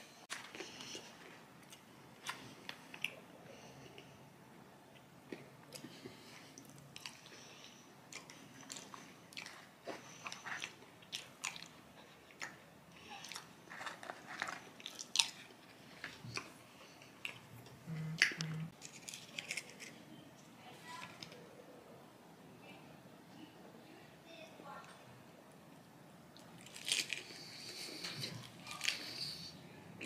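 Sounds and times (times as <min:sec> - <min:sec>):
person chewing crispy food: 0:00.3 - 0:04.1, 0:05.0 - 0:17.5, 0:18.7 - 0:20.0, 0:26.4 - 0:29.6.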